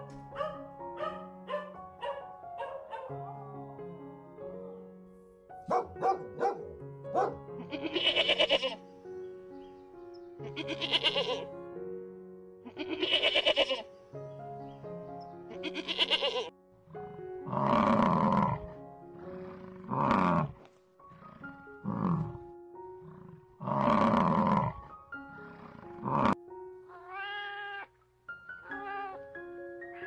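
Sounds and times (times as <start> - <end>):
background music: 0.0 - 30.0
goat bleating: 7.6 - 8.8, 10.5 - 11.4, 12.7 - 13.8, 15.6 - 16.5, 26.9 - 27.9
cat meowing: 26.9 - 27.9, 28.6 - 29.2.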